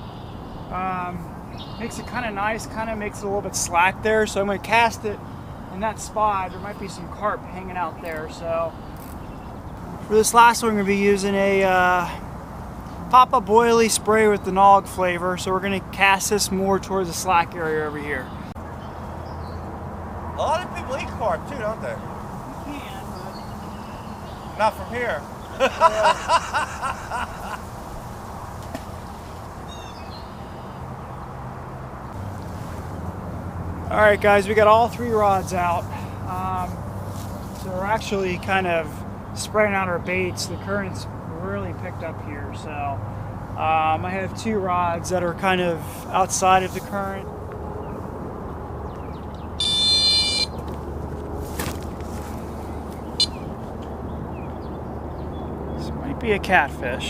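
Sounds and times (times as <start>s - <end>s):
small bird chirping: 0.0s - 2.2s, 48.9s - 50.7s, 52.6s - 55.9s
outdoor background noise: 0.0s - 57.0s
short calls: 20.4s - 28.2s, 49.4s - 50.7s, 53.0s - 53.7s
electronic bite alarm beeps: 49.6s - 50.4s.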